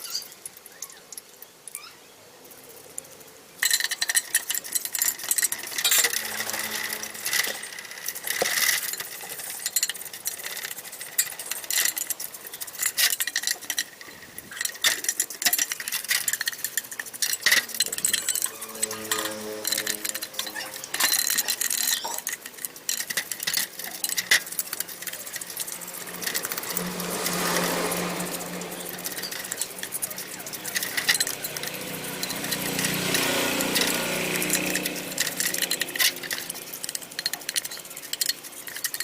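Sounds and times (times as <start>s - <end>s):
metal parts clinking and scraping: 3.0s - 39.0s.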